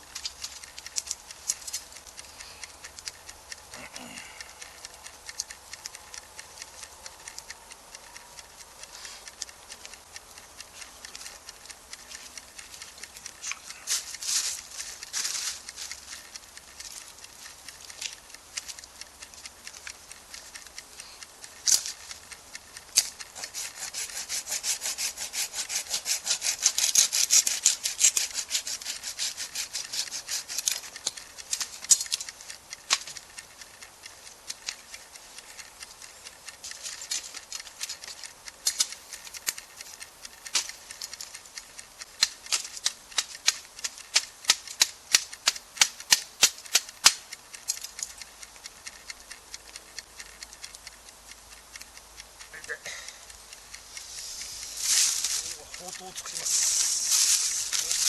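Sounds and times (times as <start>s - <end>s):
sharp evenly spaced ticks: 0.0s - 58.0s
hand saw cutting wood: 23.4s - 31.7s.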